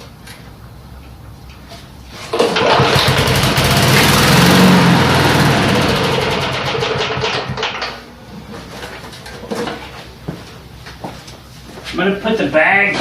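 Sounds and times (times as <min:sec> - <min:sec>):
lawn mower engine running: 0:02.3 - 0:08.0.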